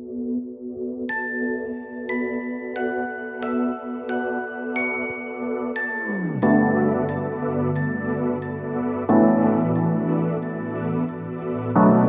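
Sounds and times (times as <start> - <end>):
soft chimes: 1.2 - 8.7.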